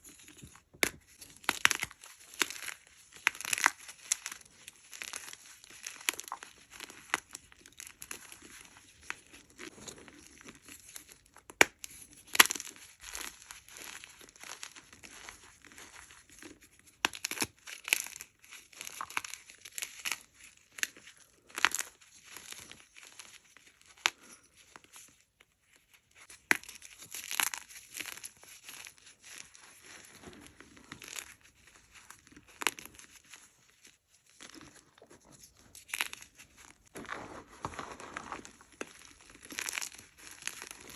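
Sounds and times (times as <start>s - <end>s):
chalk blocks crunching: 34.4s - 40.9s.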